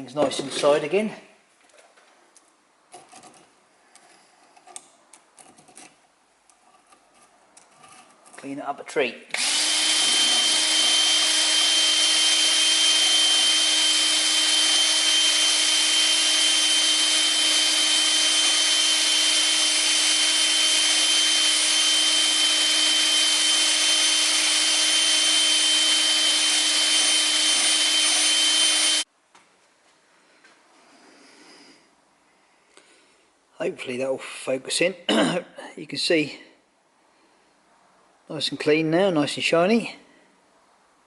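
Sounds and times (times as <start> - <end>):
power drill whine: 9.3 - 29.1.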